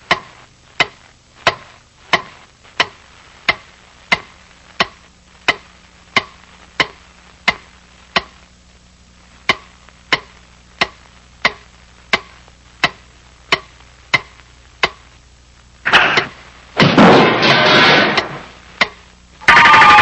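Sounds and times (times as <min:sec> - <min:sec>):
loud hit: 0:15.9 - 0:18.5.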